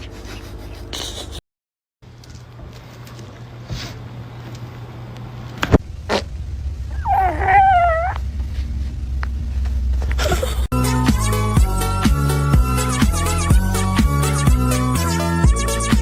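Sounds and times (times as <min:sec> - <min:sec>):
steady low hum: 0:00.0 - 0:01.4, 0:02.1 - 0:10.7
cat meowing: 0:06.9 - 0:08.2.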